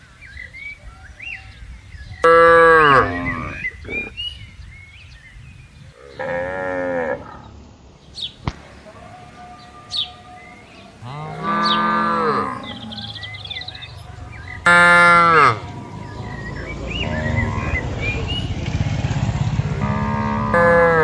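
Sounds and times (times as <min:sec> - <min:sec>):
birds chirping faintly: 0:00.0 - 0:20.9
cattle mooing: 0:02.2 - 0:04.1, 0:06.0 - 0:07.5, 0:09.0 - 0:16.4, 0:19.7 - 0:21.0.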